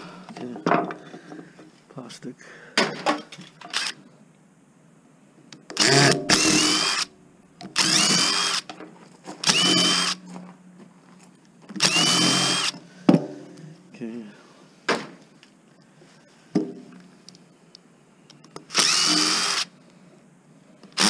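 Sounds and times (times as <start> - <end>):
power drill whining: 5.8 - 7.1, 7.7 - 8.7, 9.4 - 10.2, 11.8 - 12.8, 18.6 - 19.7.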